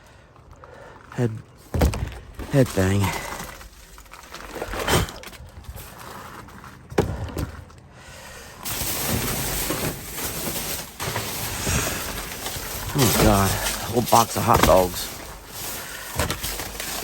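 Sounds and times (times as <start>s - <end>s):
trash rustling: 0.4s - 7.9s, 8.5s - 17.0s
boxes knocking: 8.7s - 17.0s.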